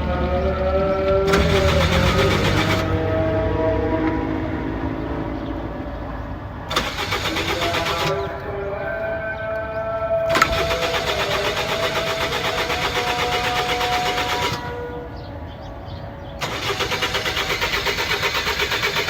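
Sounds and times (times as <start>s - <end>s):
car starter cranking: 1.0s - 3.4s, 6.7s - 8.6s, 10.3s - 15.6s, 16.3s - 19.0s.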